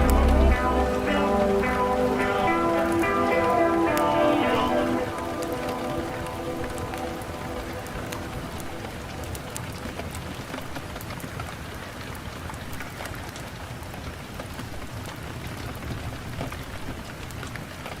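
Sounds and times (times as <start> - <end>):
rain hissing: 0.0 - 10.8.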